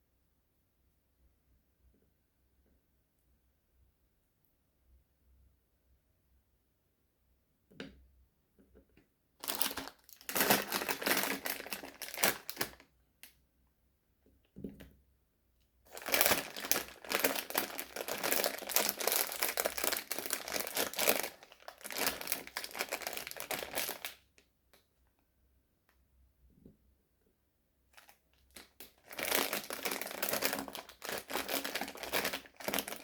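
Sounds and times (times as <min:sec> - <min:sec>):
sweet wrapper crinkling: 0:09.4 - 0:12.8, 0:15.9 - 0:24.3, 0:27.9 - 0:33.0.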